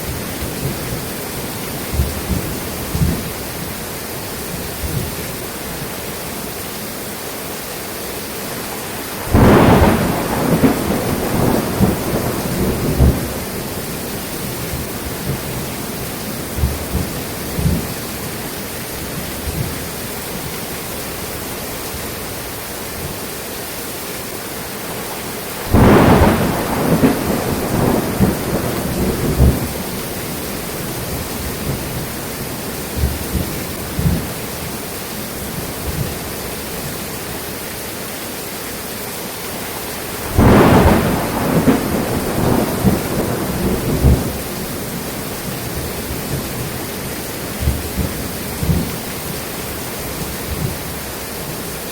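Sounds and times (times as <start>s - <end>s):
steady rain: 0.0s - 51.9s
thunder claps: 1.9s - 3.3s, 9.3s - 15.8s, 16.4s - 18.0s, 25.6s - 34.3s, 40.2s - 46.8s, 47.5s - 49.1s.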